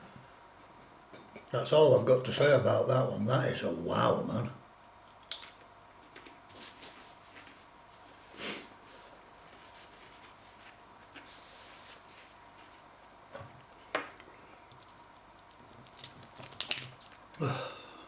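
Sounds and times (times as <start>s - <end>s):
man breathy puffs and sniffs: 8.3s - 8.8s.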